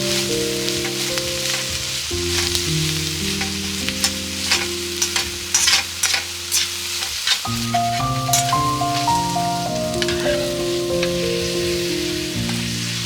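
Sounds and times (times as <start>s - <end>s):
food sizzling in a pan: 0.0s - 13.0s
soft background music: 0.0s - 13.0s
cooking utensil clicks and scrapes: 3.4s - 8.6s.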